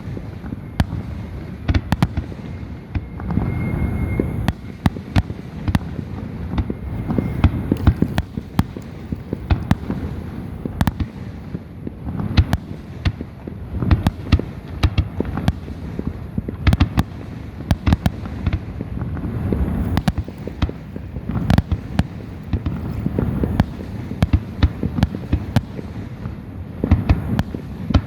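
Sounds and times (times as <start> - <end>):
distant fireworks rumble: 0.0 - 28.0
fireworks cracks and bangs: 0.0 - 28.0.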